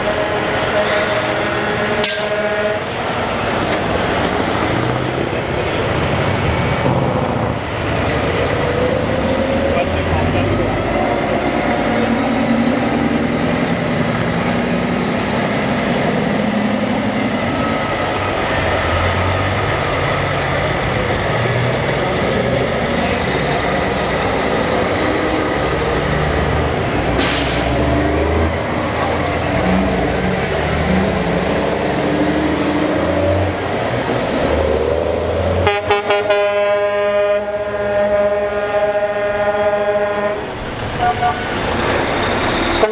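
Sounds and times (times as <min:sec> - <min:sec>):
truck air horn: 0:00.0 - 0:03.0, 0:35.6 - 0:41.6
truck diesel engines passing: 0:00.0 - 0:42.9.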